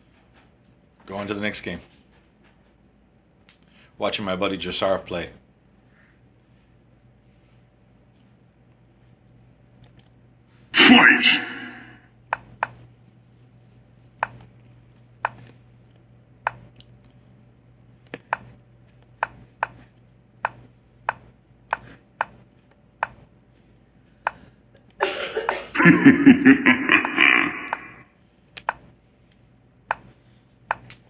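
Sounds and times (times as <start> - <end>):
pulsing voice-like sound effect: 10.8 - 12.0, 26.7 - 28.0
computer game clicks: 30.7 - 31.0.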